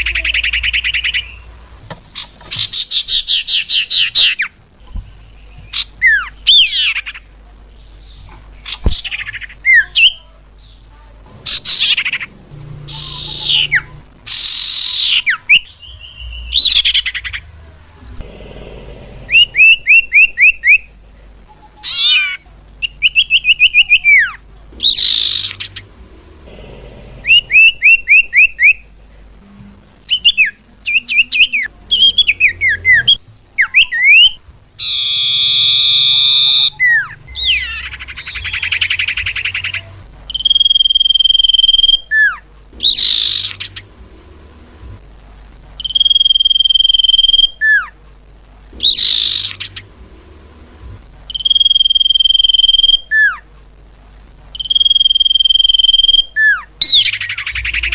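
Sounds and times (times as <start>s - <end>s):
buzzy bird trill: 0.0s - 1.6s, 2.2s - 7.3s, 8.0s - 17.6s, 19.2s - 20.9s, 21.5s - 26.5s, 27.1s - 28.8s, 30.0s - 44.0s, 45.8s - 47.9s, 48.8s - 50.0s, 51.3s - 53.4s, 54.5s - 57.9s
bird chirps and whistles: 19.3s - 20.8s, 21.9s - 25.8s, 27.3s - 28.8s, 30.1s - 43.8s, 45.8s - 47.9s, 48.8s - 49.8s, 51.3s - 53.4s, 54.6s - 57.9s.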